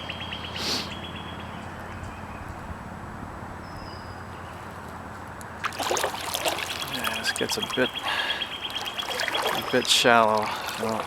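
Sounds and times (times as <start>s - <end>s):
distant traffic rumble: 0.0s - 11.0s
breeze: 5.6s - 11.0s.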